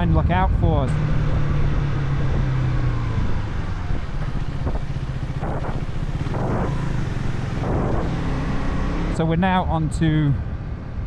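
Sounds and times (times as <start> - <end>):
motorcycle engine hum: 0.0 - 11.0
wind on microphone: 1.1 - 9.1.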